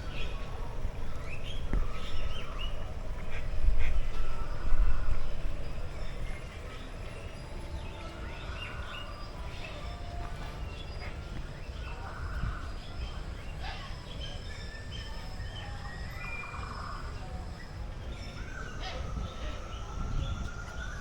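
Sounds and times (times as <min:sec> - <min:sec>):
birds chirping and whistling: 0:00.0 - 0:21.0
steady low rumble: 0:00.0 - 0:21.0.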